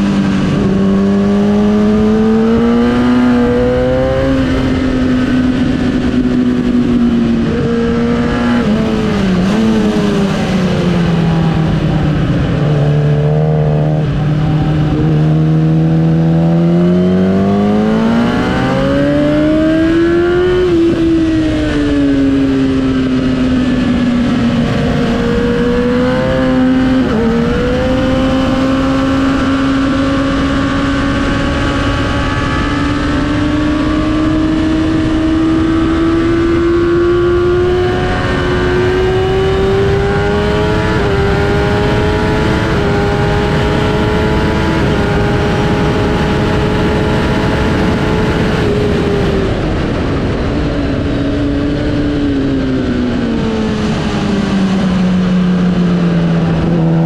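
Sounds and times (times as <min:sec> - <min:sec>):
motorcycle engine at high revs: 0:00.0 - 0:57.0
wind rush: 0:00.0 - 0:57.0.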